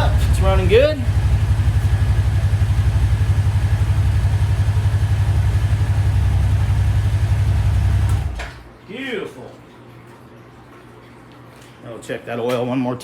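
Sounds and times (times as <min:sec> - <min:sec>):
engine idling with low pulsing rumble: 0:00.0 - 0:08.6.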